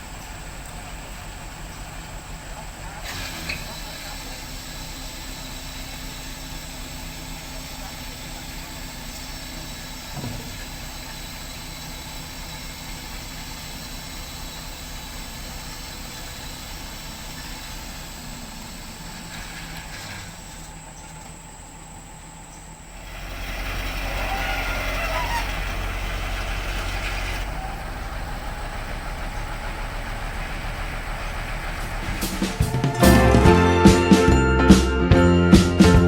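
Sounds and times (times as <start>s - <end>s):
heavy diesel engine idling: 0.0s - 36.0s
brief rising tone: 32.0s - 36.0s.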